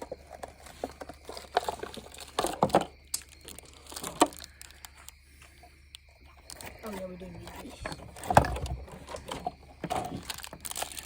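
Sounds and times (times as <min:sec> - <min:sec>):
packaging crinkling and clicking: 0:00.0 - 0:05.2, 0:08.1 - 0:11.0.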